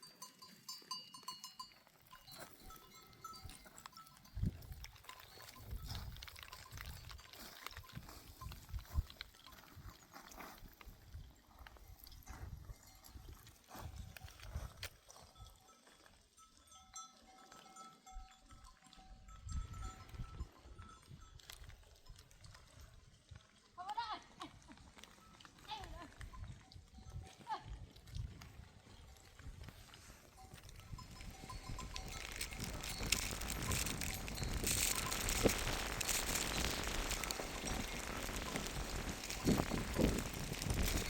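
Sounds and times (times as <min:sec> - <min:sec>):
livestock bells ringing: 0:00.0 - 0:10.1, 0:15.6 - 0:22.9, 0:30.3 - 0:41.0.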